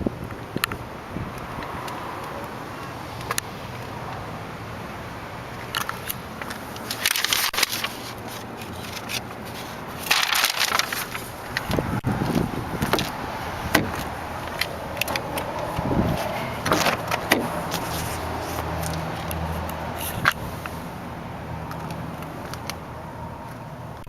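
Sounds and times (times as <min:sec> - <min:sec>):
clicks and knocks of car controls: 0:13.7 - 0:15.7.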